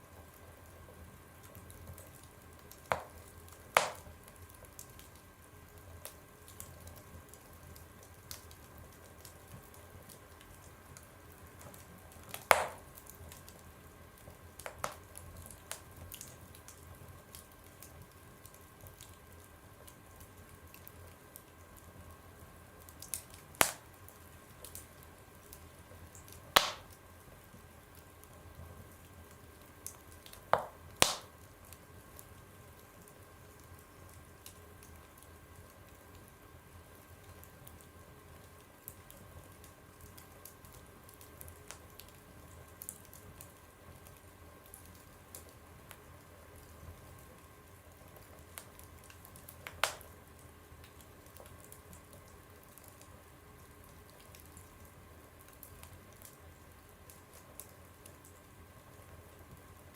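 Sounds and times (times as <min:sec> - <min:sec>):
faint steady hiss: 0:00.0 - 0:59.9
fire crackling in a fireplace: 0:00.0 - 0:59.9
sharp fire pops: 0:02.7 - 0:04.4, 0:11.6 - 0:13.4, 0:14.6 - 0:16.3, 0:23.0 - 0:24.0, 0:26.2 - 0:27.0, 0:29.8 - 0:31.5, 0:49.6 - 0:50.2.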